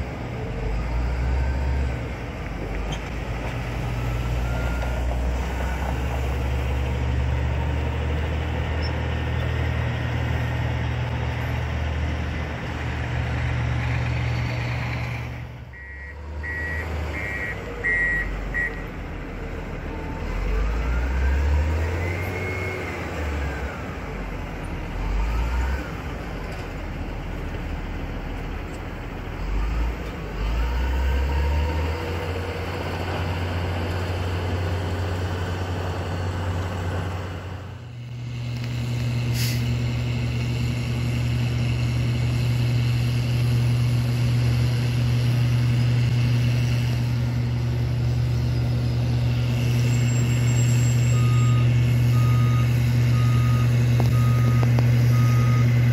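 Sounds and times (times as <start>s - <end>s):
truck engines running: 0.0s - 55.9s.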